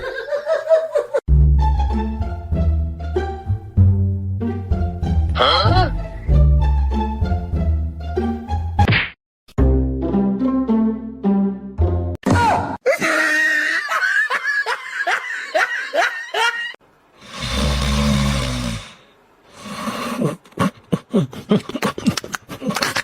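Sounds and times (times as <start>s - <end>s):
person laughing: 12.8s - 16.8s, 20.2s - 23.0s.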